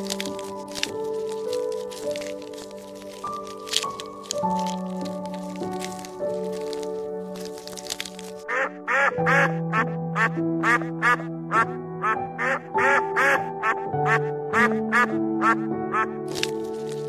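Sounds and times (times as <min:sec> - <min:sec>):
background music: 0:00.0 - 0:17.0
ducks quacking: 0:08.5 - 0:16.2.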